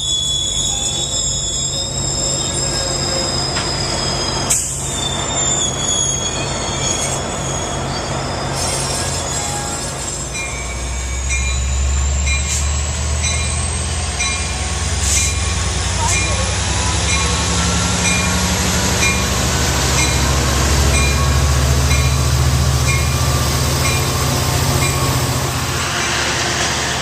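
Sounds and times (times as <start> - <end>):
train rumble: 0.0 - 27.0
train wheels squealing on rails: 0.0 - 27.0.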